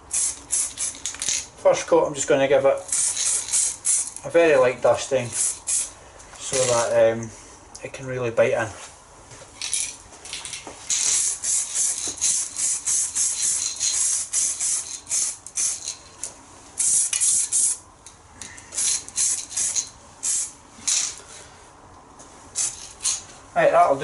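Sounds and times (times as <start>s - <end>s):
aerosol can spraying: 0.1s - 1.2s, 2.9s - 4.2s, 5.3s - 5.9s, 10.9s - 16.0s, 16.8s - 17.8s, 18.8s - 21.1s, 22.6s - 23.2s.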